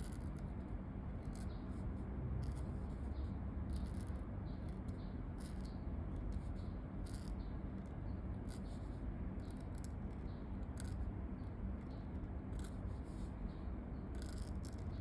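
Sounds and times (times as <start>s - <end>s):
low background hum: 0.0s - 15.0s
pen scratching on paper: 2.4s - 11.1s, 11.8s - 15.0s.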